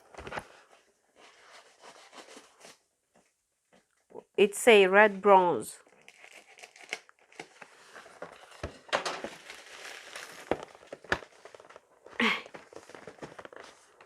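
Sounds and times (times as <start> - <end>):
plastic packaging crinkling: 5.8 - 14.0.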